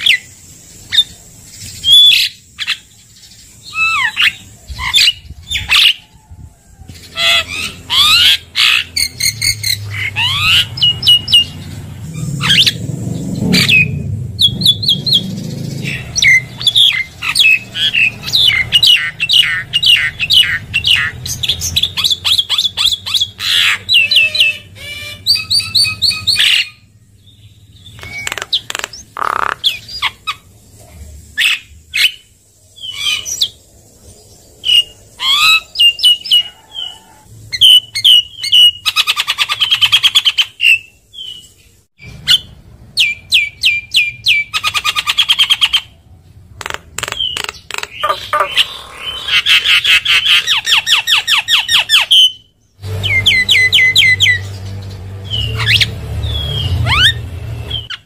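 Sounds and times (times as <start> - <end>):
myna calling: 14.5 - 26.8, 27.9 - 30.5, 34.7 - 38.2, 46.6 - 52.4.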